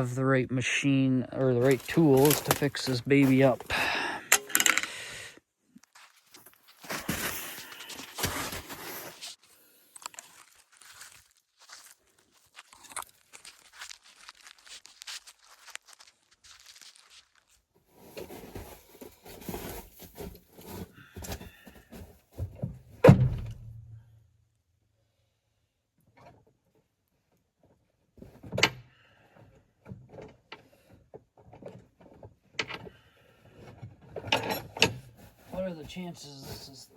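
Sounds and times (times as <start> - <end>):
rummaging through tools: 1.4 - 5.1, 5.7 - 22.9, 31.3 - 36.9
loud thunk: 23.1 - 23.8.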